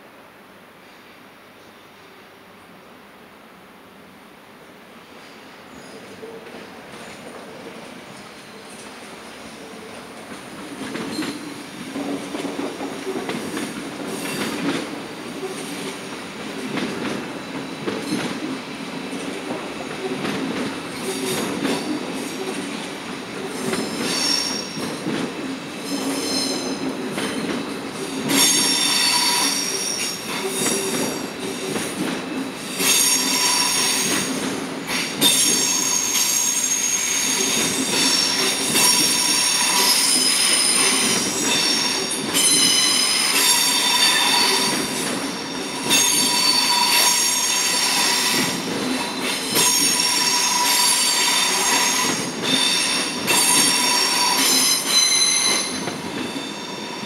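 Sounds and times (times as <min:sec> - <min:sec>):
train rolling with wheel clicks: 0:05.8 - 0:57.0
high-pitched wheel squeal: 0:35.3 - 0:45.0, 0:45.7 - 0:48.6.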